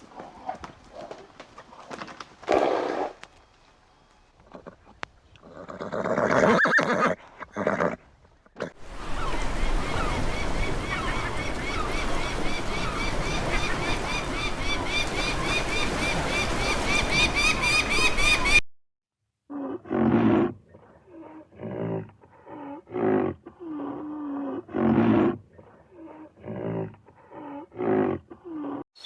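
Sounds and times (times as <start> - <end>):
horse neighing and snorting: 5.4 - 8.0.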